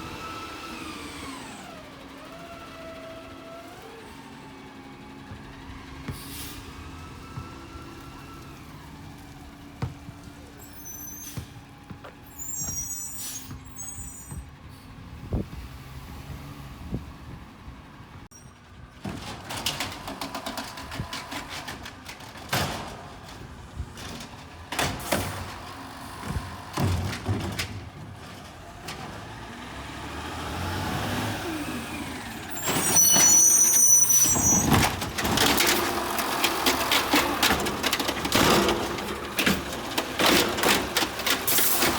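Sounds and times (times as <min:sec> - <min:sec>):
garbage truck engine running: 0:00.0 - 0:15.6, 0:17.0 - 0:41.9
high squeals: 0:10.6 - 0:11.5, 0:12.2 - 0:14.4, 0:32.5 - 0:34.8.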